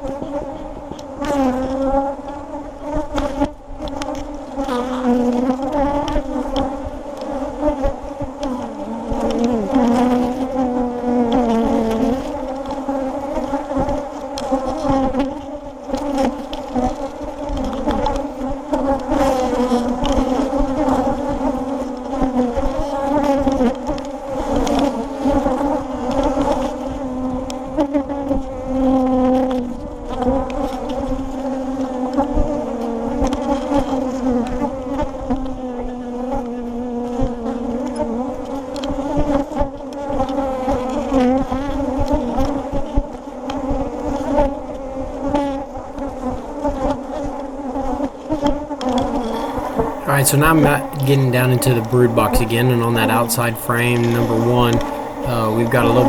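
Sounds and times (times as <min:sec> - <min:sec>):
honeybees buzzing: 0:49.4 - 0:56.0.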